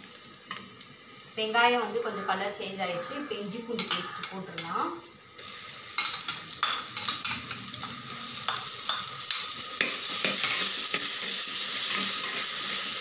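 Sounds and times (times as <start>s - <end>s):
onions frying in oil: 0.0s - 13.0s.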